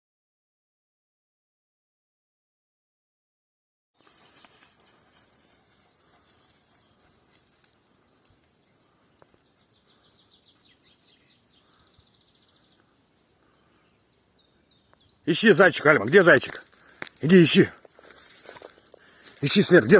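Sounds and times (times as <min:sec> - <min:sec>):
songbird song with trill: 0:04.0 - 0:19.9.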